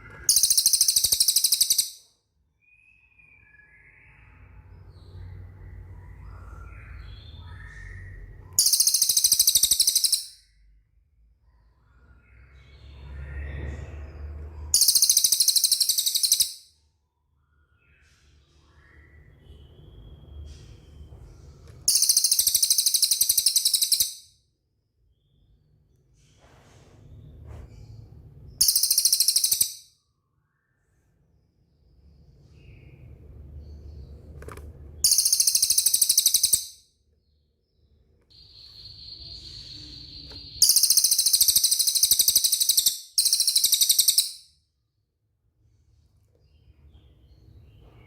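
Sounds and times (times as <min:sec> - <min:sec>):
bird high fast trills: 0:08.6 - 0:10.4, 0:14.8 - 0:16.6, 0:21.9 - 0:24.2, 0:28.6 - 0:29.8, 0:35.0 - 0:36.8, 0:38.4 - 0:44.4.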